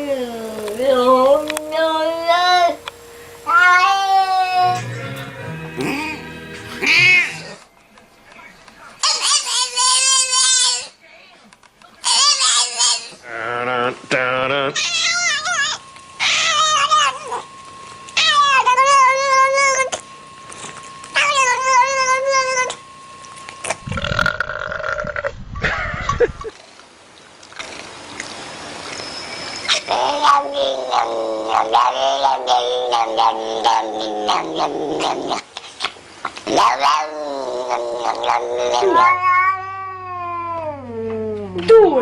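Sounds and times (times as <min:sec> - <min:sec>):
cat yowling: 0:03.5 - 0:04.8, 0:14.7 - 0:17.5, 0:18.2 - 0:20.0, 0:21.2 - 0:22.8, 0:29.7 - 0:35.2, 0:36.6 - 0:41.1.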